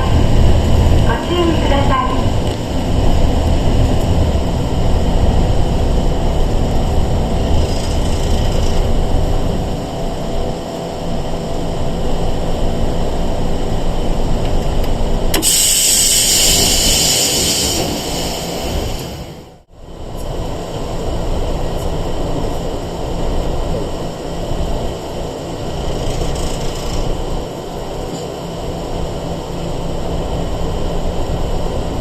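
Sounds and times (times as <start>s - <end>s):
train motors and wheels rumbling: 0.0s - 32.0s
loud hiss: 15.4s - 19.4s.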